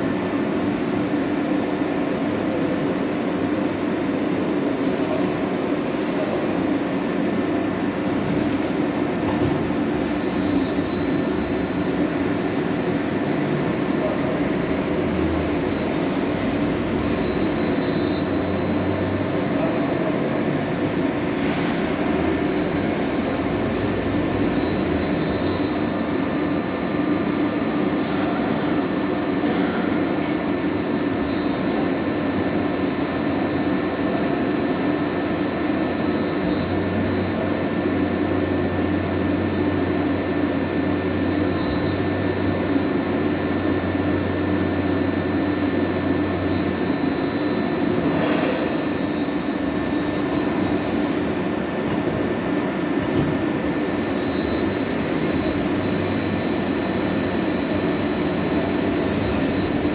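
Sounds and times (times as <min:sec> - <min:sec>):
high continuous whine: 0:00.0 - 0:59.9
lathe running: 0:10.0 - 0:52.8.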